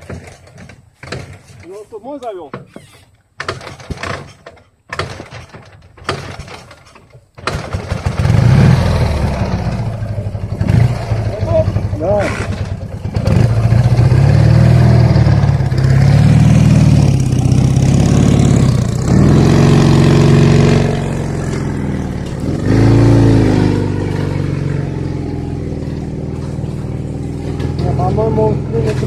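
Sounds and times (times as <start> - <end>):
motorcycle engine revving: 7.4 - 29.0.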